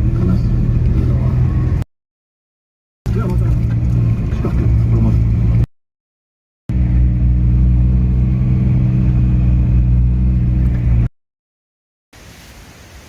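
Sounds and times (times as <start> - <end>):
car engine humming: 0.0 - 1.8, 3.1 - 5.7, 6.7 - 11.1.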